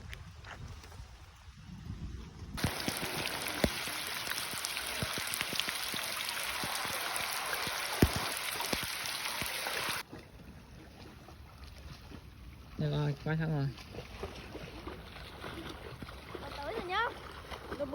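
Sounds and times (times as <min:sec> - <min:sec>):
heavy rain pelting down: 0:02.6 - 0:10.0.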